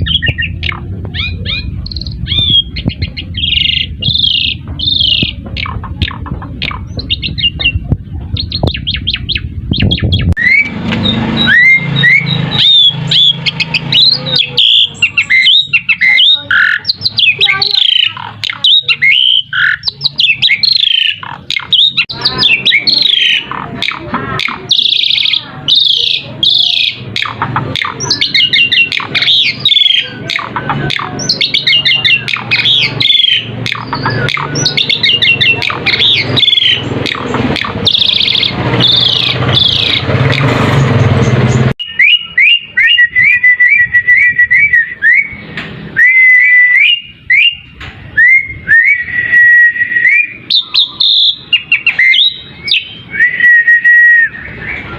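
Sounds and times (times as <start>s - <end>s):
starling singing chattering song: 0.0s - 54.9s
bird repeated whistles: 8.4s - 40.5s, 41.8s - 47.6s.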